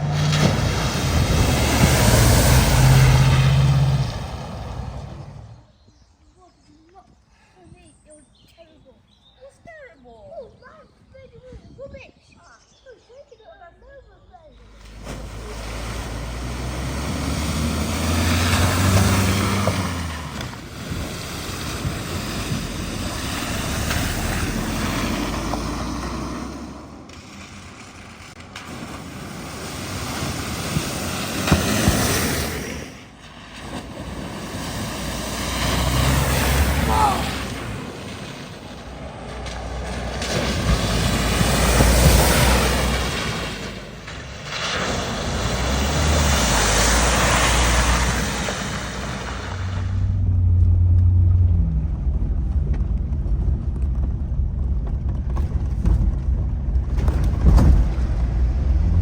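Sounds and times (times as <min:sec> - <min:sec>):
flood water rushing: 0:00.0 - 0:05.6, 0:14.6 - 0:52.2
vehicle engine running: 0:00.0 - 0:05.6, 0:14.5 - 0:28.7, 0:29.6 - 0:59.0
wind buffeting microphone: 0:00.0 - 0:06.0, 0:07.1 - 0:12.9, 0:14.5 - 0:27.8, 0:28.4 - 0:59.0.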